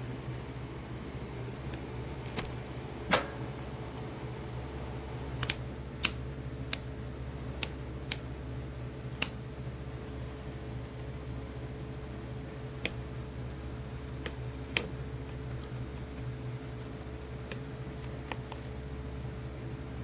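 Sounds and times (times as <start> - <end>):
steady low hum: 0.0 - 20.0
sharp clicks: 5.4 - 6.9.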